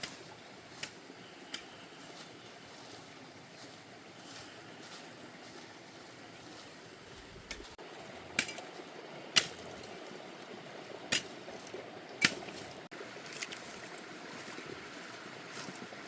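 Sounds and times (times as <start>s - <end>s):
faint steady background noise: 0.0s - 16.0s.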